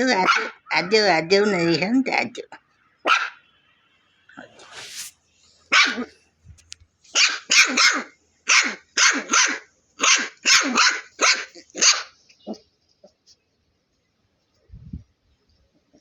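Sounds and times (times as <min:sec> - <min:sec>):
dog barking: 0:00.2 - 0:00.7, 0:03.0 - 0:03.4, 0:05.7 - 0:06.1, 0:07.1 - 0:12.2.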